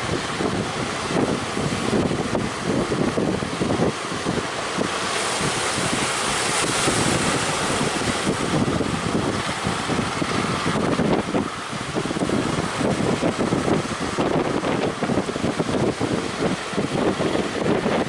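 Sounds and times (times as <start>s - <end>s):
surf rushing: 0.0s - 18.0s
wind buffeting microphone: 0.0s - 18.0s.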